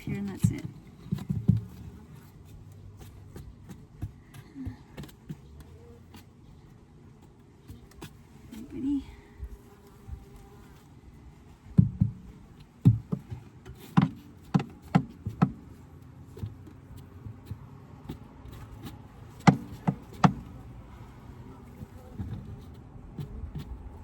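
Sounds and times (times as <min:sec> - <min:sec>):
wooden parts knocking: 0:11.7 - 0:15.8.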